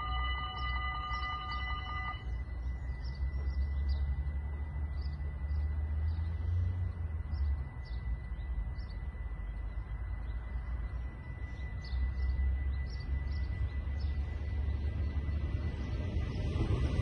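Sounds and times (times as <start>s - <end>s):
faint high tone: 0.0s - 2.8s
small birds chirping: 0.0s - 16.8s
low rumble: 0.0s - 17.0s.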